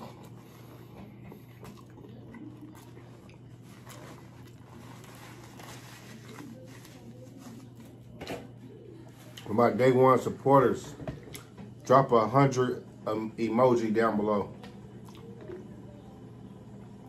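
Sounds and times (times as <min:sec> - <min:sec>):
person chewing: 0:00.0 - 0:06.5, 0:15.0 - 0:15.5
steady low hum: 0:00.0 - 0:17.0
paper napkin rustling: 0:03.6 - 0:08.1
wet mouth clicks: 0:15.0 - 0:15.3.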